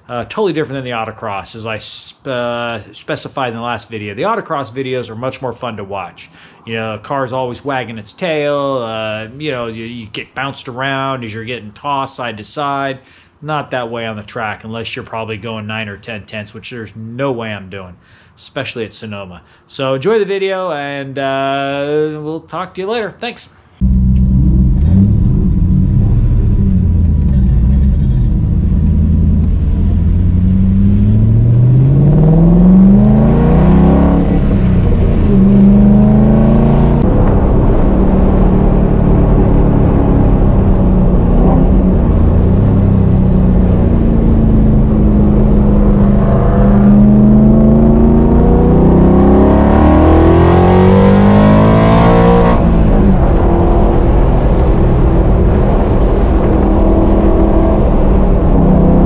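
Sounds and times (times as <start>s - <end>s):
car engine accelerating: 23.8s - 59.0s.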